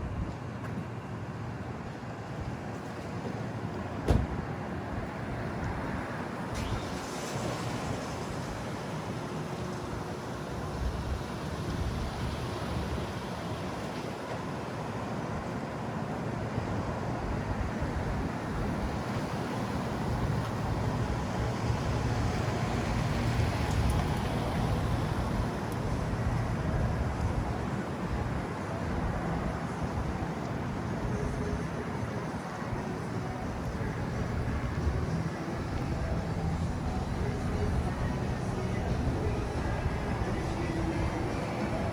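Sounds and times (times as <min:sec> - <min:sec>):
rumble of passing vehicles: 0:00.0 - 0:41.9.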